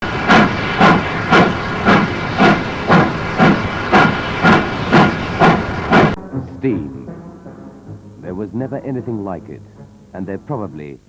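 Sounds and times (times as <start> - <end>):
steam hissing: 0.0 - 6.2
steam locomotive chuffing: 0.0 - 6.2.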